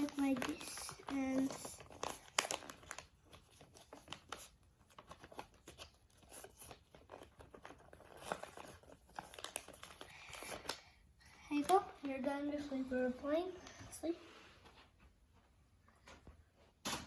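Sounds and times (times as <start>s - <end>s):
paper crinkling and rustling: 0.0s - 10.9s.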